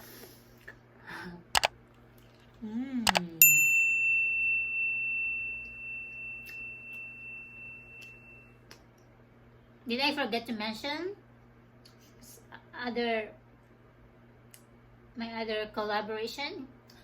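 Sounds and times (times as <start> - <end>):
short hummed sound: 2.3 - 8.7
bright bell-like ding: 3.4 - 8.5.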